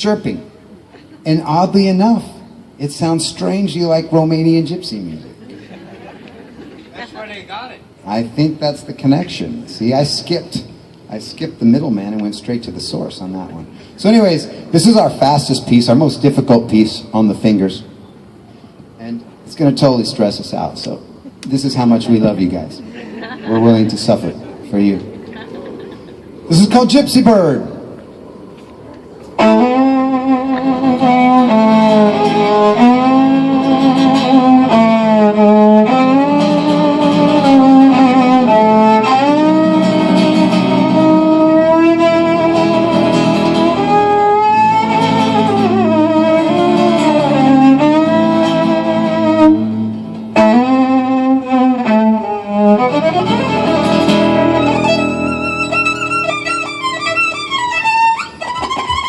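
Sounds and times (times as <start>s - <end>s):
guitar accompaniment: 0.0s - 59.0s
gypsy-style violin tune: 29.4s - 59.0s.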